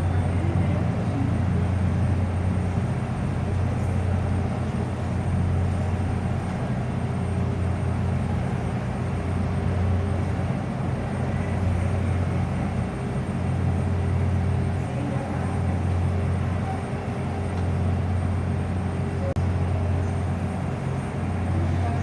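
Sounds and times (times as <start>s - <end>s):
low engine drone: 0.0s - 22.0s.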